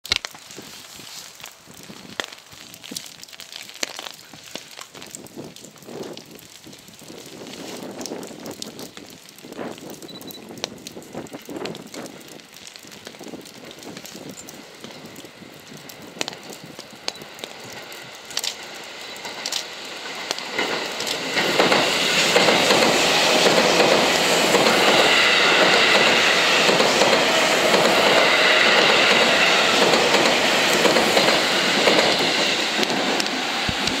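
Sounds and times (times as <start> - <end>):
wheels clattering over rail joints: 13.0 - 34.0
electric train running past: 13.8 - 34.0.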